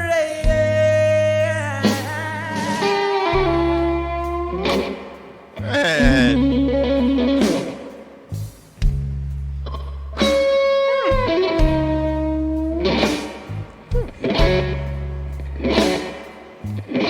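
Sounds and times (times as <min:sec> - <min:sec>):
slow blues band playing: 0:00.0 - 0:17.0
electric guitar sustained notes: 0:01.2 - 0:07.8.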